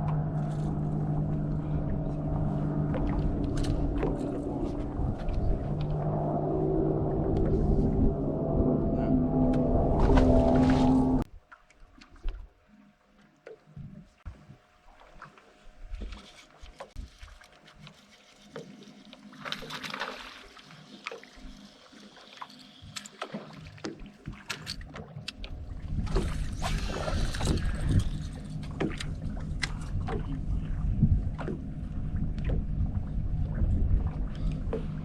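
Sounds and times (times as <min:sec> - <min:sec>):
boat motor hum: 0:00.0 - 0:11.3, 0:11.9 - 0:35.0
loud low rumble: 0:00.0 - 0:11.3, 0:25.6 - 0:35.0.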